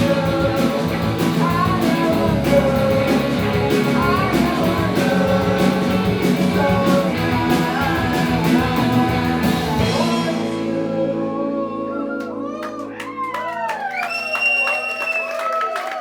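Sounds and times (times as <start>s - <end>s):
drum and cymbal hits: 0.0s - 10.5s
live rock band playing: 0.0s - 11.5s.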